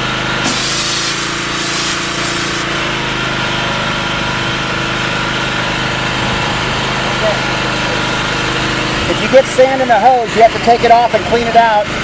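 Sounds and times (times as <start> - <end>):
pressure washer engine running: 0.0 - 12.0
water and sand spray hissing: 0.4 - 2.7.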